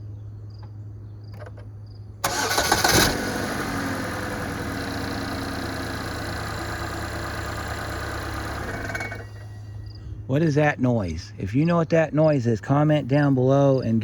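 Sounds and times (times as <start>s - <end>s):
car engine cranking and idling: 1.4s - 10.0s.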